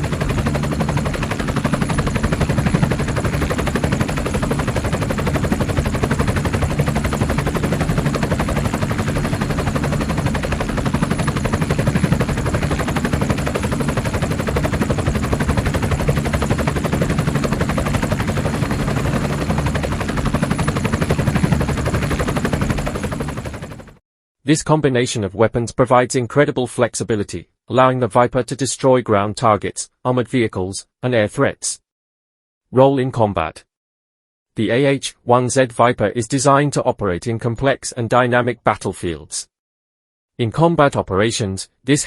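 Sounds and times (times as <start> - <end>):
helicopter rotor chopping: 0.0 - 24.0.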